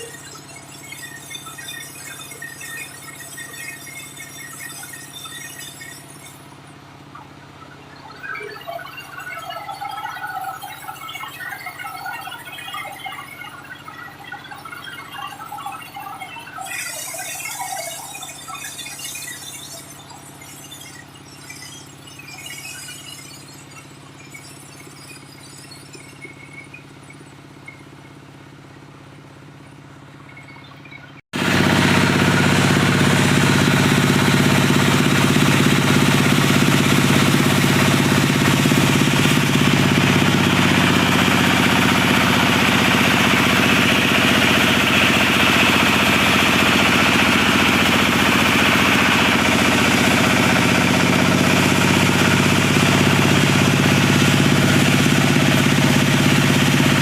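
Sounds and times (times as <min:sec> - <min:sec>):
diesel engine running saw: 0:00.0 - 0:30.6, 0:31.4 - 0:57.0.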